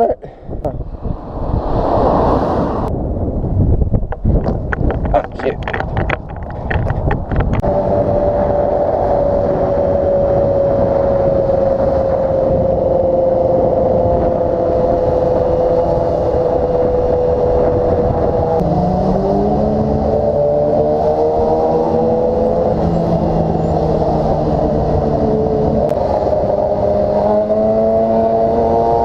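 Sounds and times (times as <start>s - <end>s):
wind noise: 0.0s - 29.0s
motorcycle engine running: 13.9s - 29.0s.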